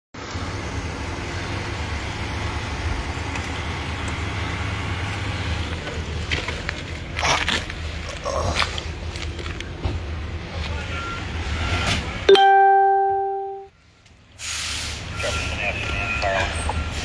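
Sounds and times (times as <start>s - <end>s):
heavy vehicle engine idling: 0.2s - 8.1s.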